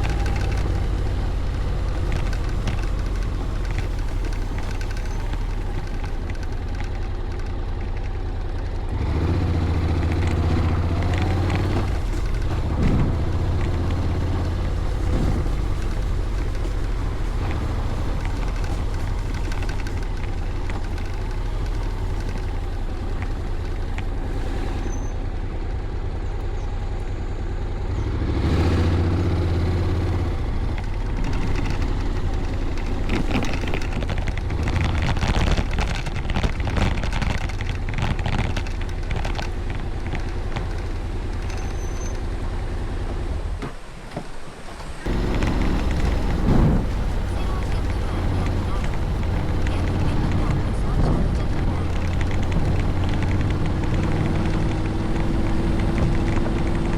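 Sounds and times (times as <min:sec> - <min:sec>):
scooter engine running: 0:00.0 - 0:43.8, 0:44.8 - 0:56.9.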